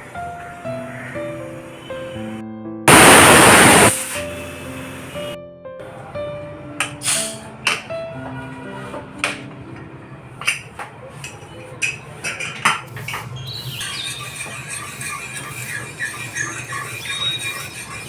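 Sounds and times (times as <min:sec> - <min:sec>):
birds chirping: 0:00.0 - 0:03.9, 0:13.4 - 0:14.4
kitchen utensils clattering: 0:10.4 - 0:18.0.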